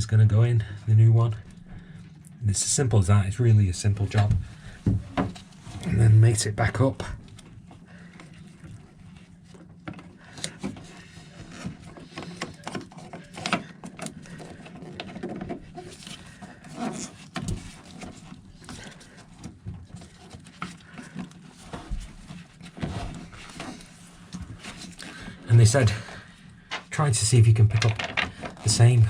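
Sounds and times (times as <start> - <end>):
low steady hum: 0.0 - 29.0
plastic clicks and knocks: 27.7 - 28.6.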